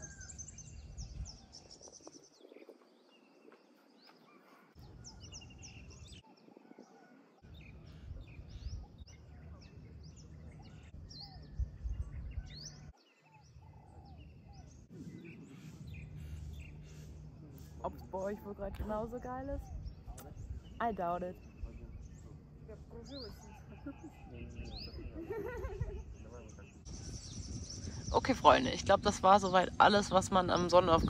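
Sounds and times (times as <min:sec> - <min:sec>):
small birds chirping: 0:00.0 - 0:31.0
low outdoor rumble: 0:13.6 - 0:31.0.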